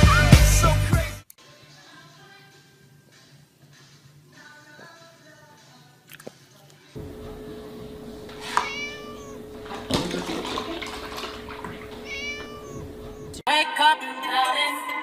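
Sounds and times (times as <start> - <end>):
music: 0.0 - 7.0, 13.5 - 15.0
milk pouring and splashing: 7.0 - 13.4
steady hum: 7.0 - 13.4
kitten meowing: 8.1 - 13.4.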